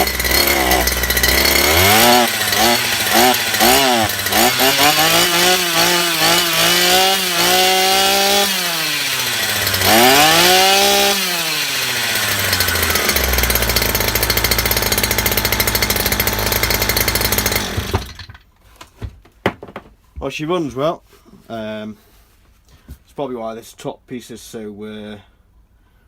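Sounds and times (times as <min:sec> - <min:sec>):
brush cutter engine revving: 0:00.0 - 0:18.4.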